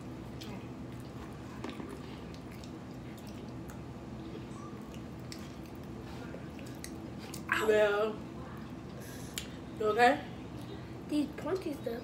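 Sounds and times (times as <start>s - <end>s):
low background hum: 0.0s - 12.0s
people chewing fries: 0.3s - 9.5s.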